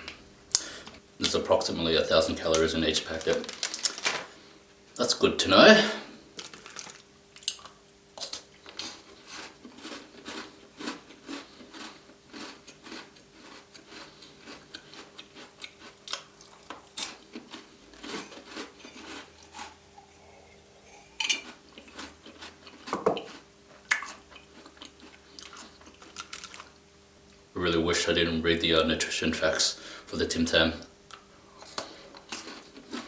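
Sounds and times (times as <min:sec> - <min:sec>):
faint steady hum: 0:00.0 - 0:33.0
biscuits crunching: 0:02.0 - 0:04.4, 0:06.3 - 0:27.4, 0:30.8 - 0:33.0.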